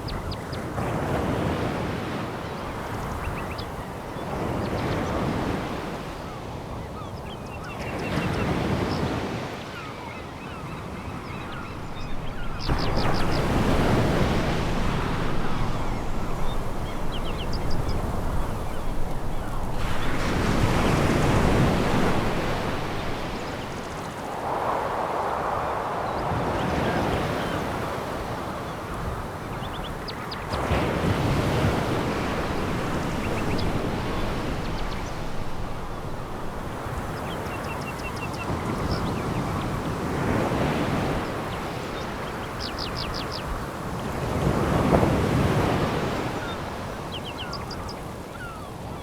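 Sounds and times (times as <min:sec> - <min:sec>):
waves breaking on pebbles: 0:11.6 - 0:28.8, 0:30.5 - 0:42.3.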